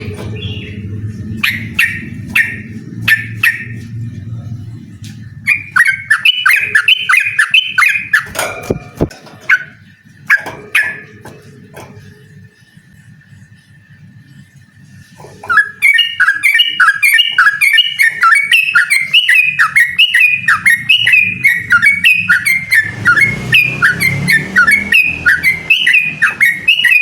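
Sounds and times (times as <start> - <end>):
bird calling: 0.0 - 12.9, 15.2 - 27.0.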